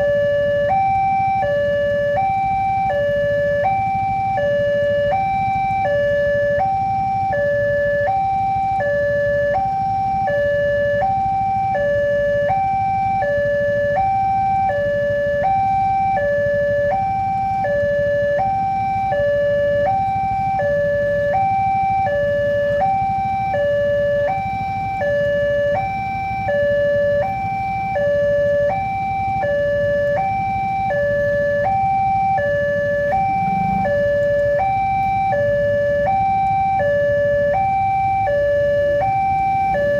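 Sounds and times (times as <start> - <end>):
two-tone crossing alarm: 0.0 - 39.9
low rumbling noise: 29.9 - 36.7.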